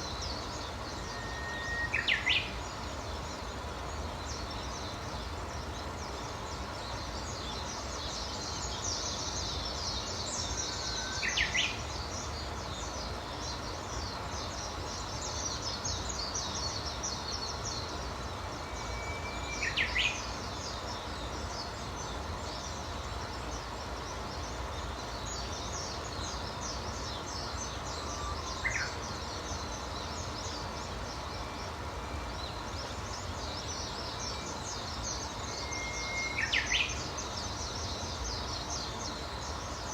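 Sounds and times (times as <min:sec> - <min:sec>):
high chirping bird chorus: 0:00.0 - 0:39.9
bird whistled song: 0:01.0 - 0:02.6, 0:18.6 - 0:20.4, 0:34.1 - 0:37.2.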